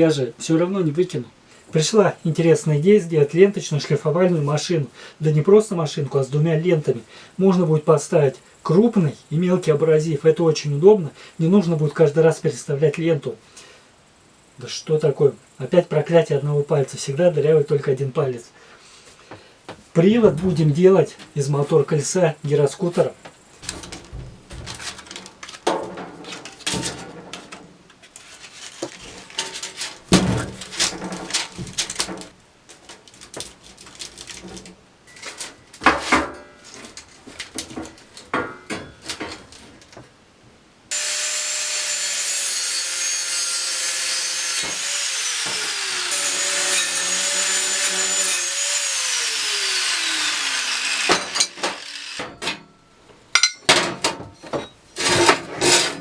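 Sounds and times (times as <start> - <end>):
parts and tools clattering: 23.6 - 40.0, 50.9 - 56.0
power tool running: 40.9 - 52.3.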